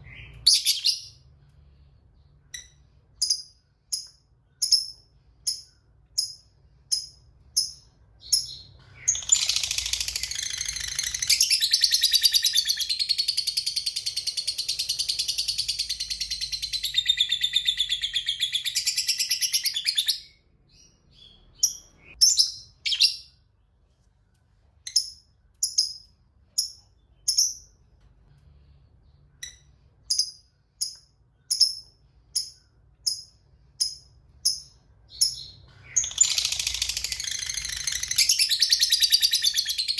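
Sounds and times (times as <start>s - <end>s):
lovebird chirping: 0.0s - 23.5s, 24.8s - 27.8s, 29.0s - 39.9s
lovebird chattering trill: 2.6s - 20.0s, 32.4s - 39.9s.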